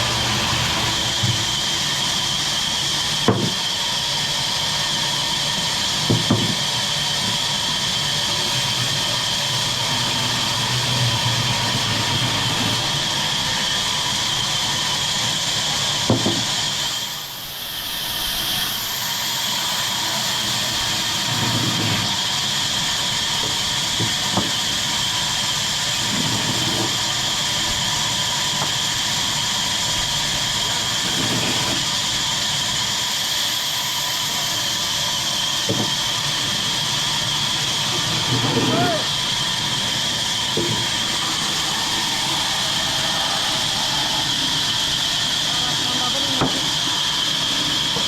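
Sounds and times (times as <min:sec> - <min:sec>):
chainsaw engine running: 0:34.0 - 0:48.0.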